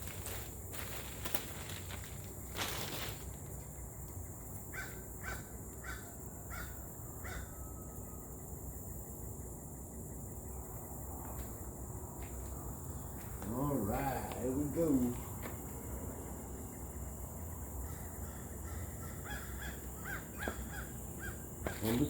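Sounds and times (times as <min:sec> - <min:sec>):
bird calling: 0:17.8 - 0:22.0.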